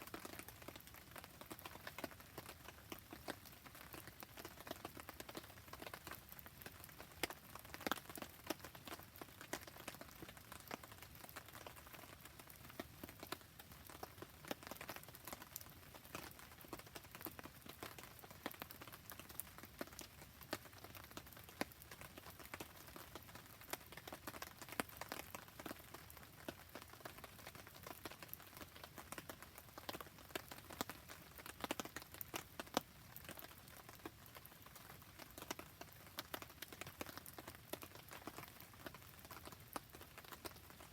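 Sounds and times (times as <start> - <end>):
rain patter: 0.0 - 40.9.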